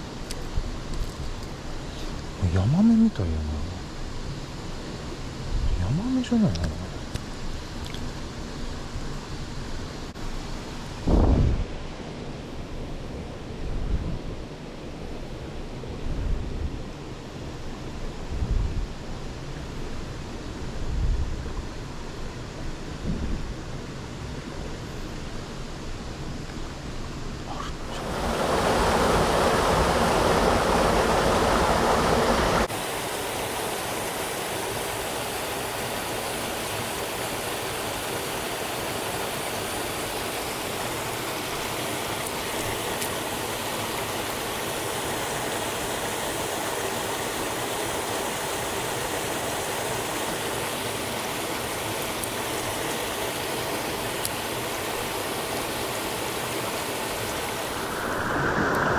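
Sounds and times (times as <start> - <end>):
stream rushing over rocks: 27.8 - 58.9.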